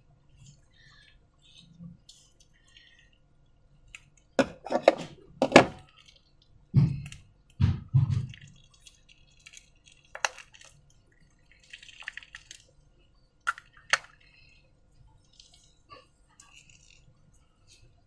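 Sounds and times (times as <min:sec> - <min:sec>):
slime squelching: 0:00.0 - 0:18.0
sharp wet clicks: 0:05.8 - 0:12.8, 0:13.4 - 0:14.6.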